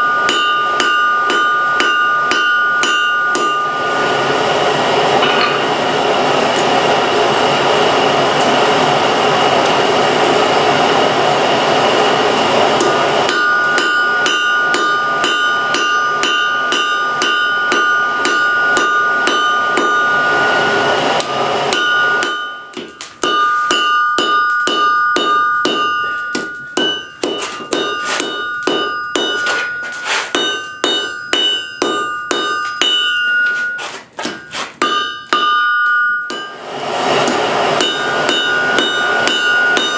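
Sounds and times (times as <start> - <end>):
hammer striking steel on anvil: 0.0 - 4.5, 5.1 - 5.8, 12.3 - 39.9.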